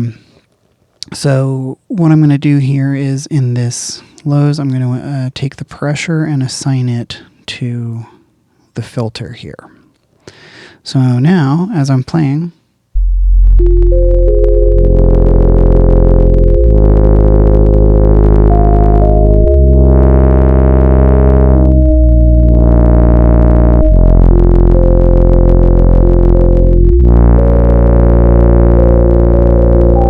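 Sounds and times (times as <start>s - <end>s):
synthesizer sustained chords: 13.0s - 30.0s.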